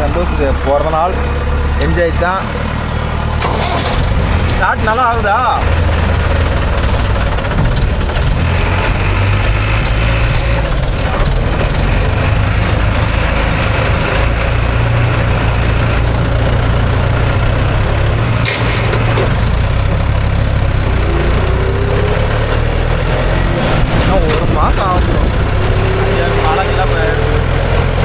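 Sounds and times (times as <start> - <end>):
tractor diesel engine rumbling: 0.0 - 28.0.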